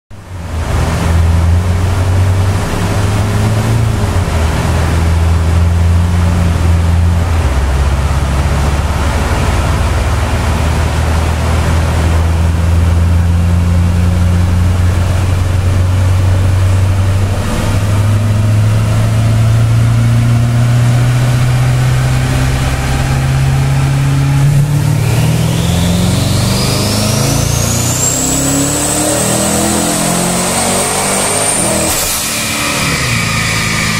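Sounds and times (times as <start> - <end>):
car engine pulling hard: 0.2 - 33.9.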